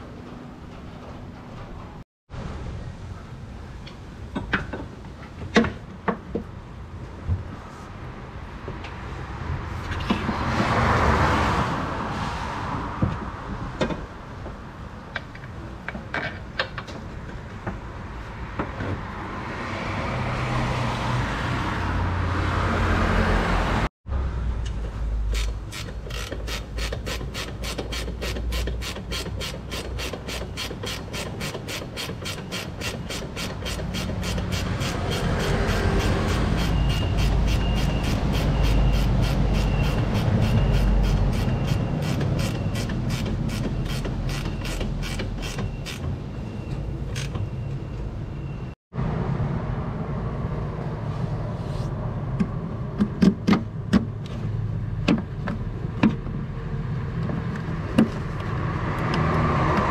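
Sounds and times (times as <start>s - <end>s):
ratchet wrench clicking: 25.3s - 46.0s.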